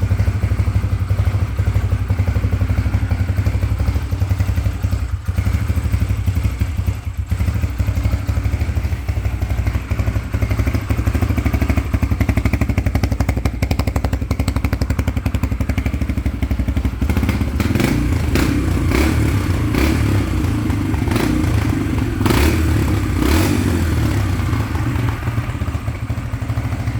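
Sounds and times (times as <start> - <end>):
motorcycle engine idling: 0.0 - 26.9.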